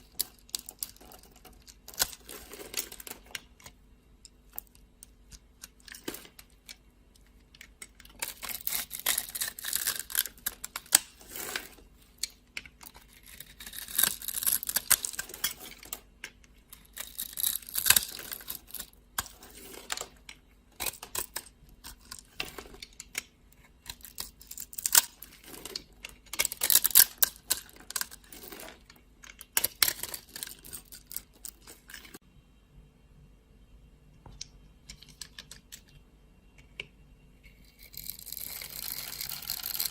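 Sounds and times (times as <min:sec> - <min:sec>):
knife scraping dry soap: 0:07.6 - 0:15.9, 0:16.7 - 0:20.1, 0:37.6 - 0:39.9.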